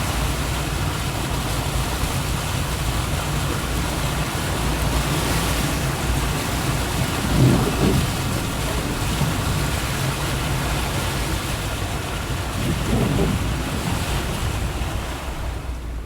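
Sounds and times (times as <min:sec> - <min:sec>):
heavy rain: 0:00.0 - 0:16.0
low rumble: 0:06.3 - 0:10.0, 0:12.3 - 0:15.2.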